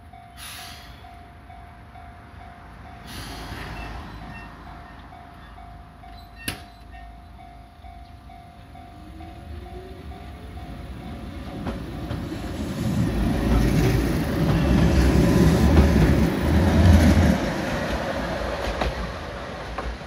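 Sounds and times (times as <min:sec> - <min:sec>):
electric train passing: 0:00.0 - 0:20.0
wheels clicking over rail joints: 0:10.1 - 0:20.0.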